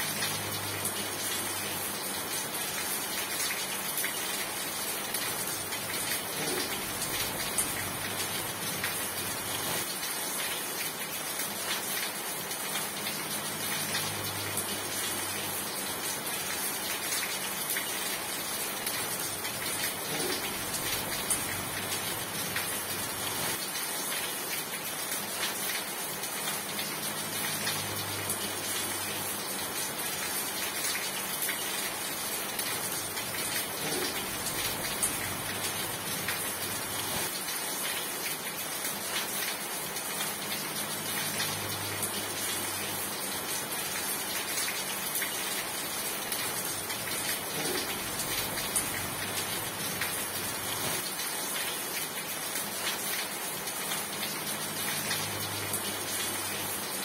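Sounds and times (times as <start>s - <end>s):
dense rainfall: 0.0s - 57.0s.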